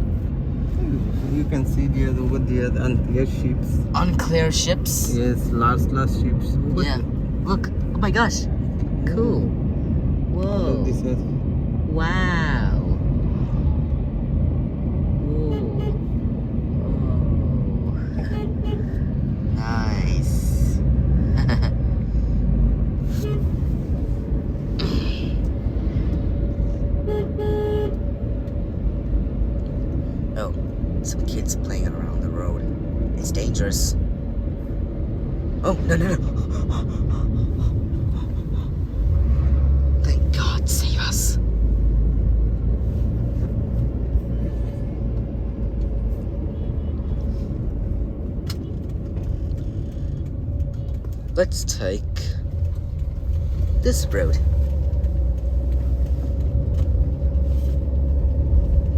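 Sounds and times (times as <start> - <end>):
engine and tyre rumble: 0.0 - 58.9
vehicle horn beeps: 27.0 - 28.0.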